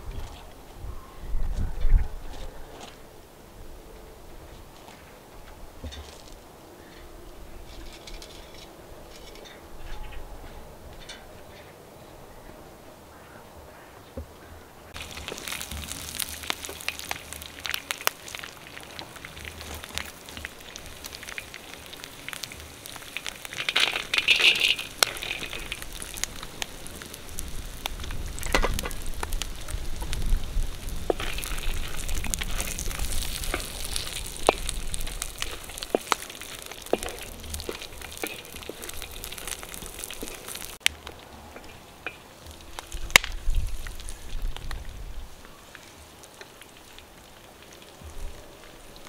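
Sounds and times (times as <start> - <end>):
food sizzling in oil: 14.9 - 40.9
crackling pops: 14.9 - 49.0.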